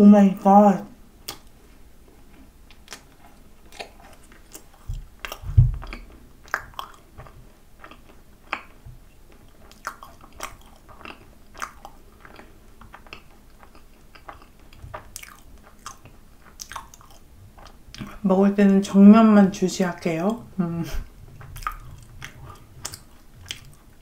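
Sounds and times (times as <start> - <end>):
mouth clicks and smacks: 1.2 - 1.6, 2.7 - 18.2, 21.4 - 23.9
dull low thumps: 4.8 - 6.0.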